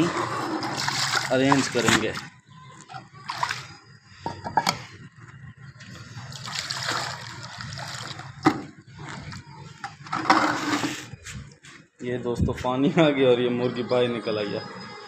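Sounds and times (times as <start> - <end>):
water pouring into a dish: 0.7 - 2.3, 6.3 - 8.4.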